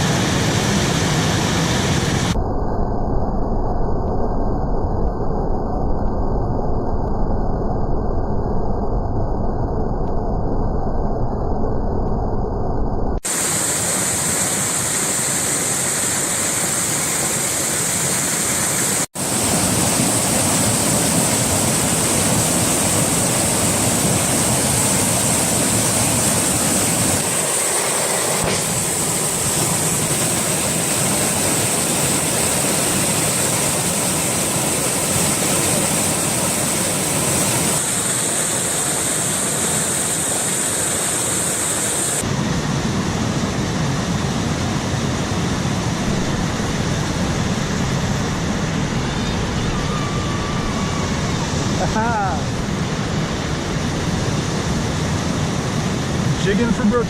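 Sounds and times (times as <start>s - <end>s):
waterfall rushing: 13.3s - 42.2s, 48.1s - 54.6s.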